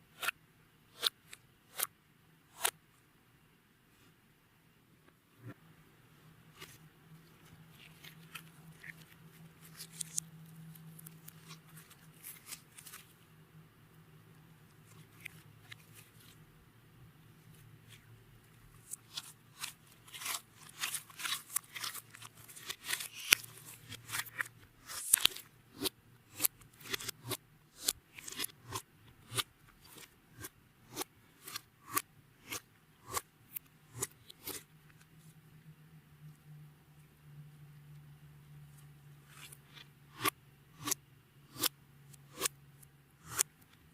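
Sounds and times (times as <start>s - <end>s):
beaded slime clicking and crunching: 18.9s - 30.0s.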